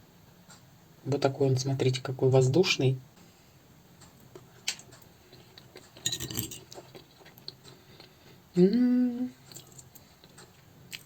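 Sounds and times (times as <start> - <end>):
fork clinking against a plate: 6.0 - 6.8
person humming mmm: 8.5 - 9.5.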